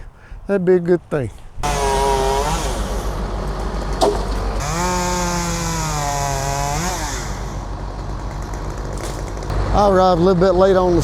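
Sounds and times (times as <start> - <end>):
chainsaw revving: 1.6 - 9.7
sharp knock: 4.0 - 4.5.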